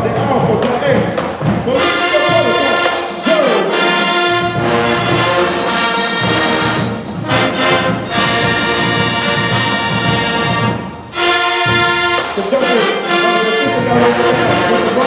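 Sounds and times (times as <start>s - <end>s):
brass band playing held chords: 1.6s - 15.0s.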